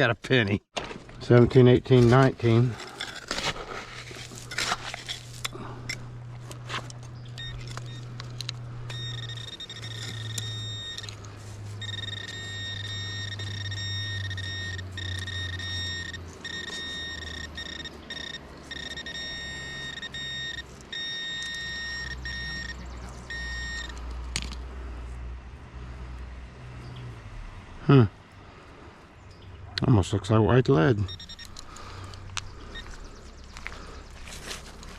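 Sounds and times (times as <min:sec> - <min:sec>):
low hum: 0:02.3 - 0:29.8
metal detector high-pitched tone: 0:07.4 - 0:08.2, 0:08.9 - 0:24.0, 0:31.0 - 0:31.6.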